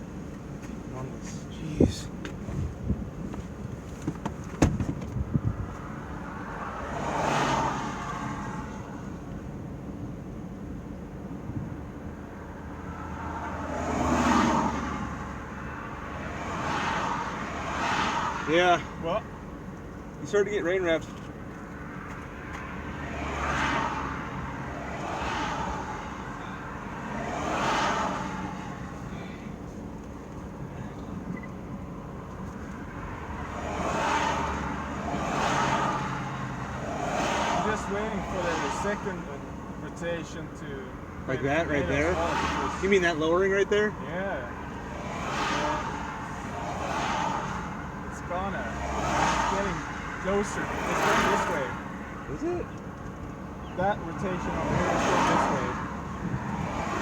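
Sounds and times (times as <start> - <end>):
car engine running: 0.0 - 6.6
vehicle humming: 0.0 - 57.0.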